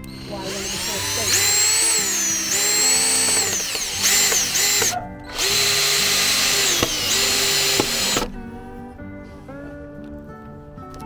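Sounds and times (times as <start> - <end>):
power drill motor whine: 0.0 - 8.4.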